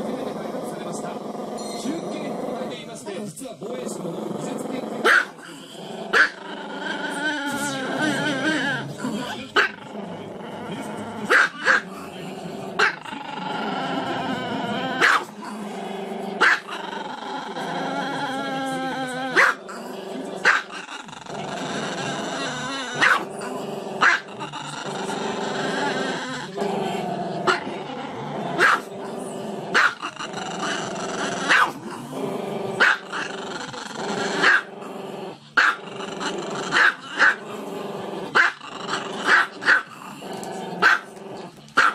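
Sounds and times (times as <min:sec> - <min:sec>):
small dog growling: 0:00.0 - 0:41.9
small dog barking: 0:05.0 - 0:05.4, 0:06.1 - 0:06.4, 0:11.3 - 0:11.8, 0:15.0 - 0:15.3, 0:16.4 - 0:16.7, 0:19.3 - 0:19.6, 0:20.4 - 0:20.8, 0:23.0 - 0:23.3, 0:24.0 - 0:24.3, 0:28.6 - 0:28.9, 0:29.7 - 0:30.1, 0:31.5 - 0:31.8, 0:32.8 - 0:33.2, 0:34.4 - 0:34.7, 0:35.6 - 0:35.9, 0:36.7 - 0:37.4, 0:38.4 - 0:38.6, 0:39.2 - 0:39.9, 0:40.8 - 0:41.1.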